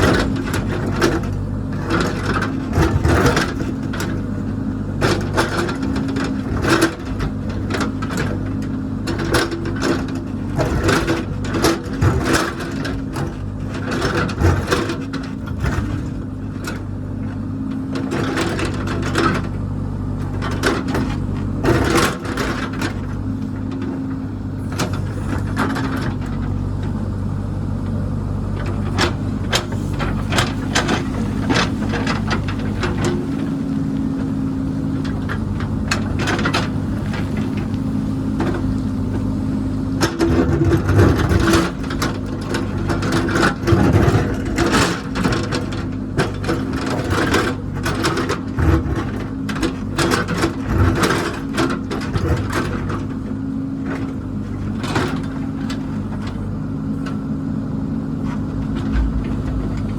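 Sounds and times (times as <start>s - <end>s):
diesel engine running: 0.0s - 59.9s
clanks and knocks: 58.2s - 59.9s.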